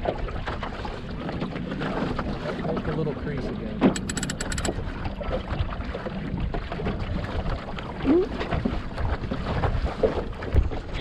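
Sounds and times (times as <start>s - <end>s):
water noise: 0.0s - 11.0s
wind: 0.0s - 11.0s
rattle of clicks: 4.0s - 4.7s.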